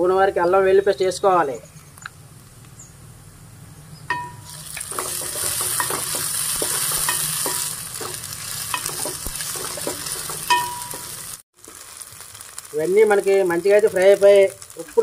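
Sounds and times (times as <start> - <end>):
ringing tap on pot: 4.1 - 4.5
spoon scraping and clinking pot: 4.1 - 11.2
paste sizzling in hot oil: 4.4 - 15.0.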